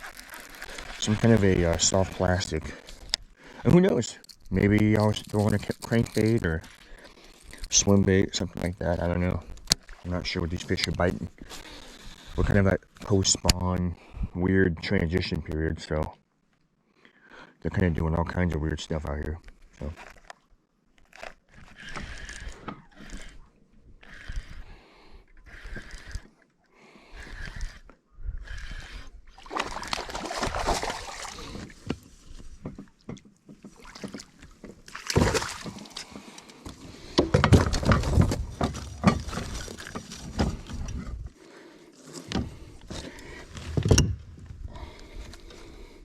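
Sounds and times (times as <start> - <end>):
rustling: 0.0 - 3.1
water sounds: 28.7 - 31.9.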